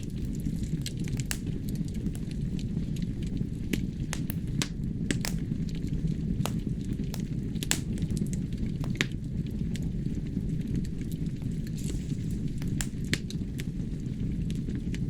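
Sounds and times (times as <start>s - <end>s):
logs crackling and popping: 0.0s - 15.0s
low rumble of flame: 0.0s - 15.0s.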